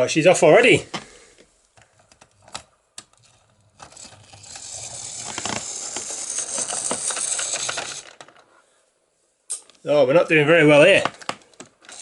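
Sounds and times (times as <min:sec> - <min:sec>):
model train wheels clattering: 0:03.2 - 0:08.5, 0:11.0 - 0:12.0
small electric motor whirring: 0:03.8 - 0:08.1.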